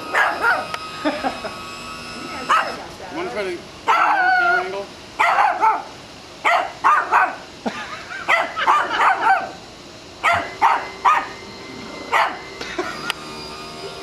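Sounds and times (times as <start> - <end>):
small dog barking high-pitched: 0.1 - 0.7, 2.5 - 2.8, 3.9 - 4.6, 5.2 - 7.5, 8.3 - 9.6, 10.2 - 11.4, 12.1 - 12.4.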